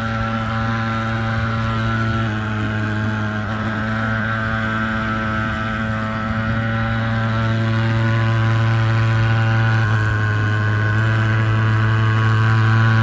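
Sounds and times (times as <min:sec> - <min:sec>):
fogging machine drone: 0:00.0 - 0:13.0.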